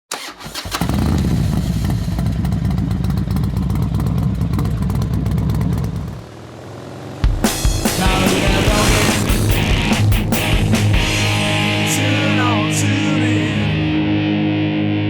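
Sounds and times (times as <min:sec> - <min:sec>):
motorcycle engine running: 0:00.6 - 0:12.3.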